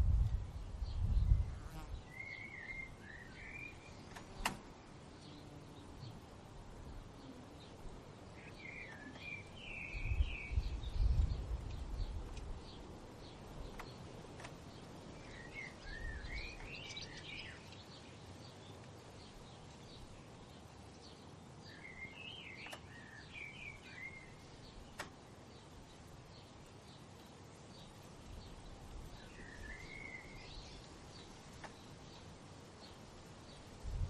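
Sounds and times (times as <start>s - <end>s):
low rumble: 0.0s - 1.5s
songbird warbling: 15.2s - 17.9s, 29.2s - 31.8s.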